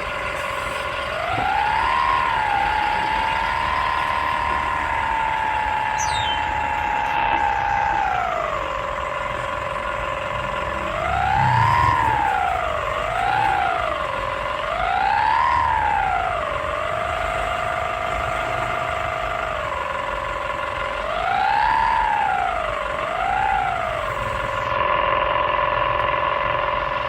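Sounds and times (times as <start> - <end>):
siren-like swooping tone: 0.0 - 24.9.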